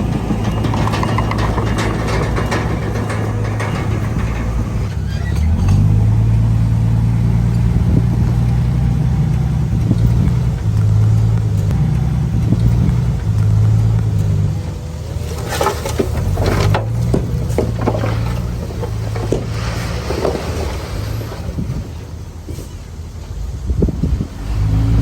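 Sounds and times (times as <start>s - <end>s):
sharp metal clanks: 0.0s - 6.2s
bulldozer diesel engine running: 0.0s - 25.0s.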